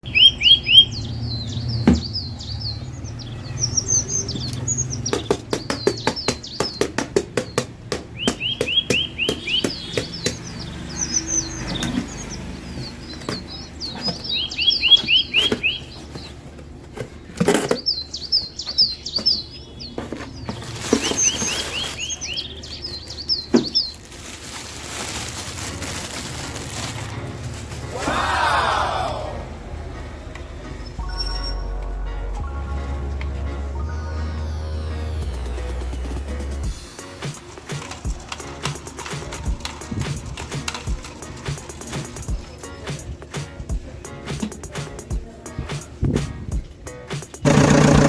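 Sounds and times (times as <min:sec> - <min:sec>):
birds chirping: 0:00.0 - 0:24.2, 0:35.2 - 0:48.0
sharp knocks: 0:05.1 - 0:10.4
rapid clicks: 0:36.4 - 0:42.4, 0:47.3 - 0:48.0.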